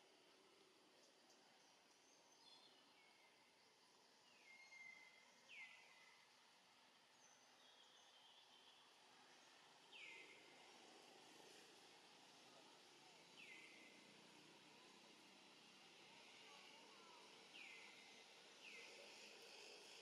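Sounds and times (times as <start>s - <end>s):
faint whistled bird calls: 4.2s - 6.2s.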